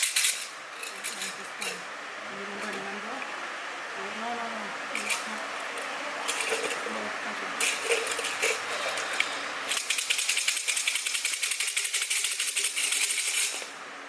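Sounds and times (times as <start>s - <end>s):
bamboo sticks rattling in cylinder: 0.0s - 1.8s, 6.3s - 7.0s, 7.6s - 13.7s.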